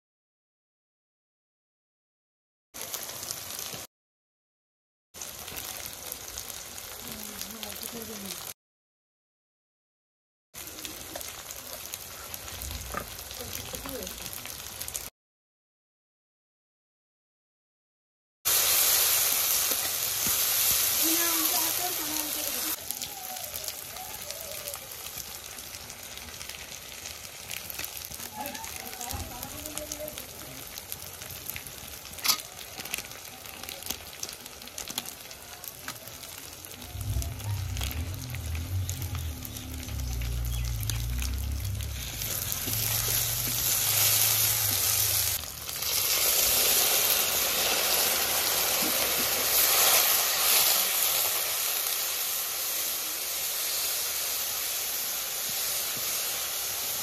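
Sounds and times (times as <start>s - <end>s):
masala sizzling in a pan: 2.8s - 3.9s, 5.2s - 8.6s, 10.6s - 15.1s, 18.5s - 57.0s
low rumble: 36.8s - 45.4s.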